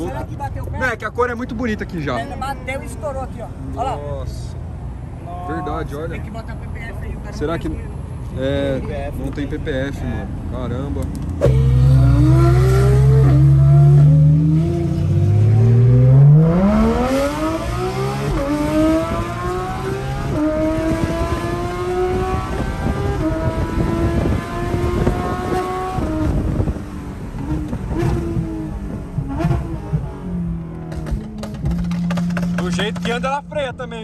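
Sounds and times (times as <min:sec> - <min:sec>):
road and wind noise: 0:00.0 - 0:34.0
car engine accelerating through gears: 0:11.4 - 0:33.1.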